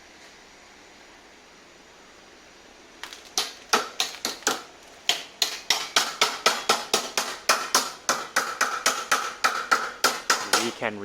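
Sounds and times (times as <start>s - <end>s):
hammer striking sheet metal: 3.4s - 10.8s.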